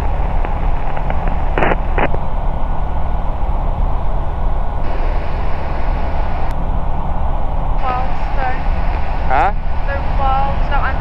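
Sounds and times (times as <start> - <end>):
microlight engine droning: 0.0 - 11.0
short bursts of noise: 1.0 - 2.2, 4.8 - 6.5.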